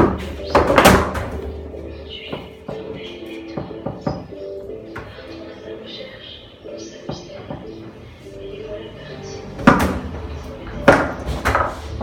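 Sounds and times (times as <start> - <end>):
foosball ball knocking: 0.0 - 5.2, 9.6 - 10.2, 10.8 - 12.0
background music: 0.0 - 12.0.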